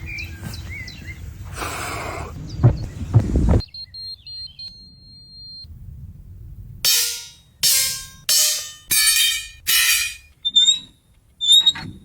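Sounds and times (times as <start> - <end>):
birds chirping: 0.0 - 5.0
outdoor background noise: 0.0 - 12.0
heavy thumps: 2.4 - 3.6, 6.9 - 10.3.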